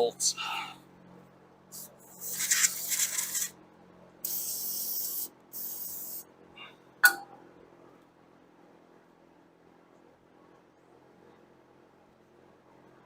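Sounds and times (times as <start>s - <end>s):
aerosol spray hissing: 1.8s - 3.5s, 4.2s - 6.2s.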